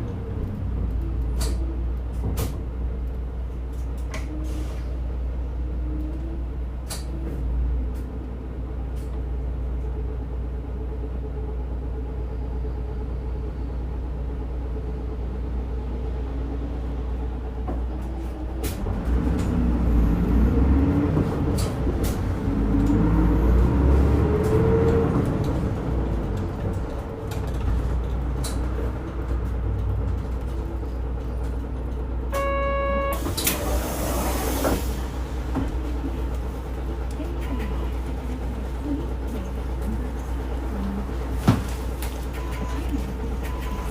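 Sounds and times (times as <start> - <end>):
bus diesel engine: 0.0 - 43.9
short beep: 32.3 - 33.3.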